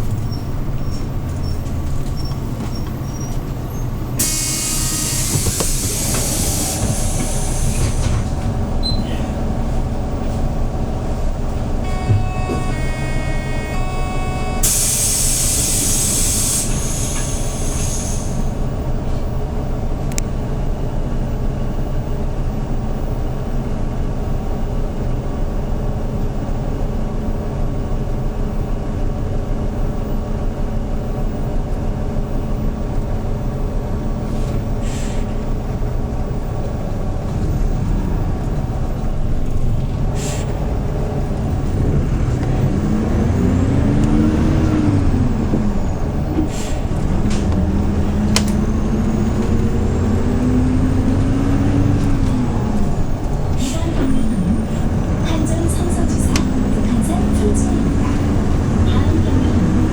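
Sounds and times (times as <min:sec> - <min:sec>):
bus engine running: 0:00.0 - 0:59.9
compressed air hiss: 0:04.2 - 0:08.2, 0:14.6 - 0:18.4.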